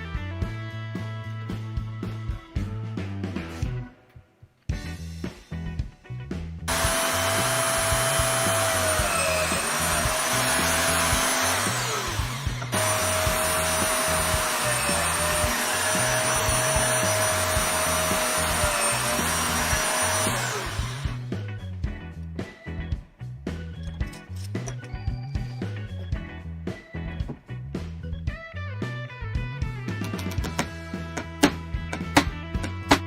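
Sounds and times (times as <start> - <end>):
bandsaw motor whining: 6.7 - 21.3.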